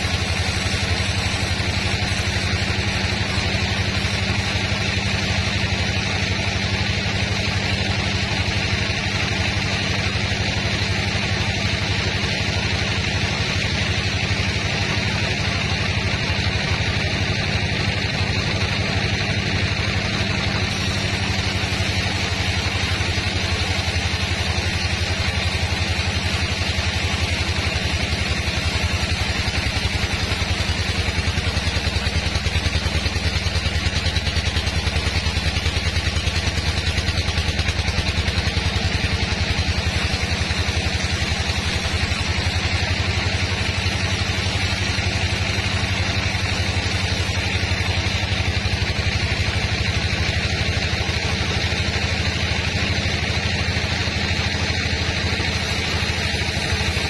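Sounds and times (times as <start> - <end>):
sawmill engine drone: 0.0 - 57.0
steady hiss: 19.8 - 48.3, 55.4 - 57.0.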